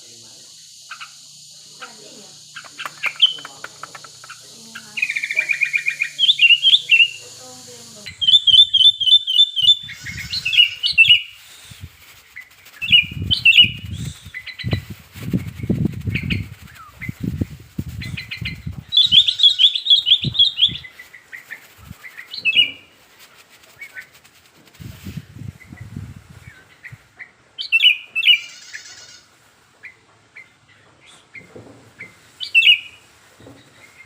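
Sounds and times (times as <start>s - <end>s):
bulbul chirping song: 0.5s - 22.9s, 32.0s - 33.0s.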